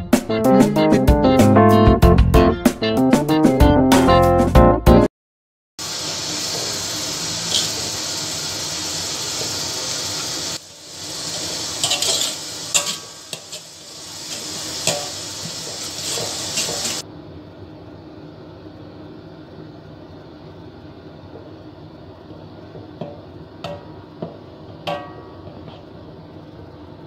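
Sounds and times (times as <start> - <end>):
spice paste sizzling in hot oil: 5.8 - 17.0
spatula scraping a pan: 11.8 - 17.0.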